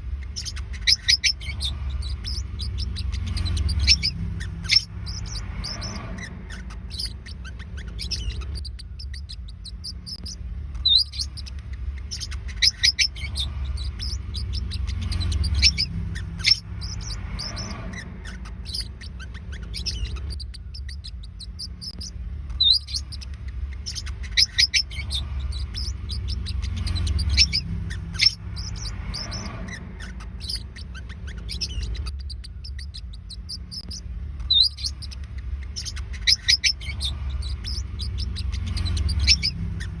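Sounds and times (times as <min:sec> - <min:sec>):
parrotlets chirping: 0:00.0 - 0:40.0
steady low hum: 0:00.0 - 0:40.0.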